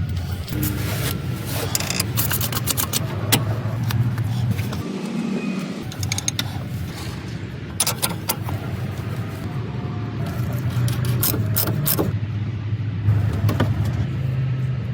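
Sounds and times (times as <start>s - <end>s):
van engine idling: 0.0s - 4.9s, 5.8s - 12.2s
sharp clicks or knocks: 5.8s - 6.7s, 7.8s - 8.7s.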